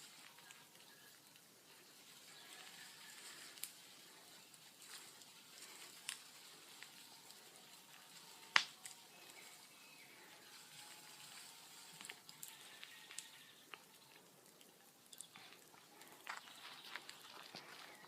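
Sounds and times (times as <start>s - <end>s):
bonfire crackling and popping: 0.0s - 18.0s.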